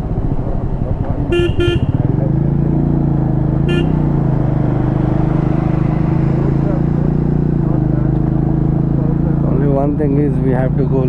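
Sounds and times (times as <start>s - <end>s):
motorcycle engine running: 0.0s - 11.0s
vehicle horn toots: 1.3s - 2.1s, 3.7s - 4.1s.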